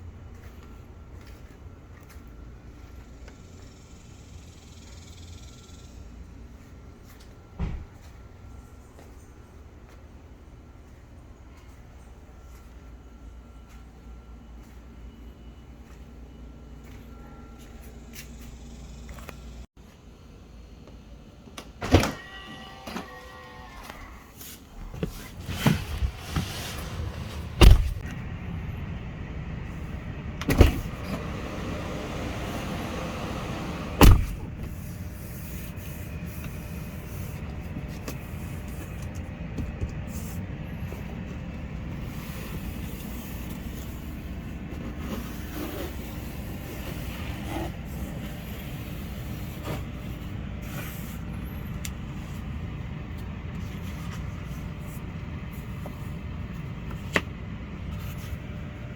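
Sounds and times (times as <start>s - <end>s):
steady low hum: 24.6s - 58.9s
loud thumps: 27.6s - 28.0s, 34.0s - 34.7s.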